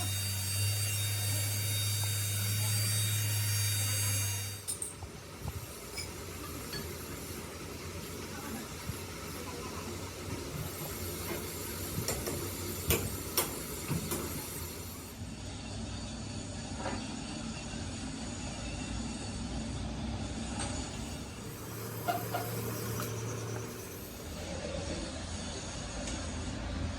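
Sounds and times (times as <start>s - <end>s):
workshop machinery hum and hiss: 0.0s - 26.9s
machine low hum: 20.8s - 24.6s.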